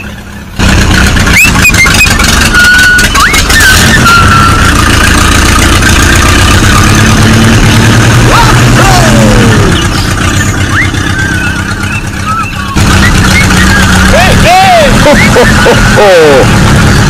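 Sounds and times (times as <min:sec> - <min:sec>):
tractor engine chugging: 0:00.0 - 0:17.0
short whistling squeals: 0:01.3 - 0:04.8, 0:09.7 - 0:14.1.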